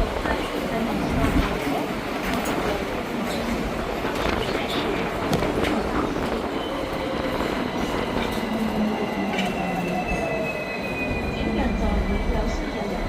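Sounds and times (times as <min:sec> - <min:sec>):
tram running on rails: 0:00.0 - 0:13.0
high-pitched rail squeal: 0:06.6 - 0:12.2.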